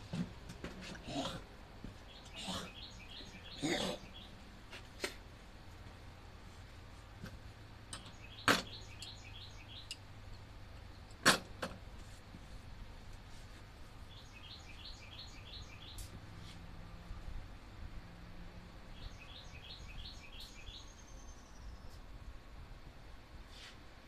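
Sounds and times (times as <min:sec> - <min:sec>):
bird chirping: 0:02.0 - 0:04.4, 0:08.0 - 0:10.0, 0:14.0 - 0:16.2, 0:18.9 - 0:22.0.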